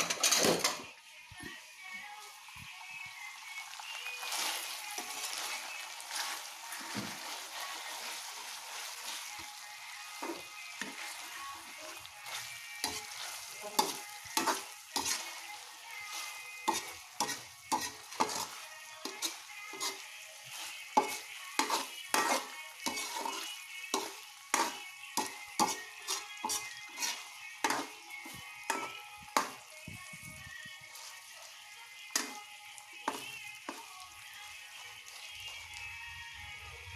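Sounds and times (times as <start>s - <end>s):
food sizzling in hot oil: 0.0s - 36.9s
spatula scraping a pan: 3.9s - 29.7s, 30.9s - 32.4s.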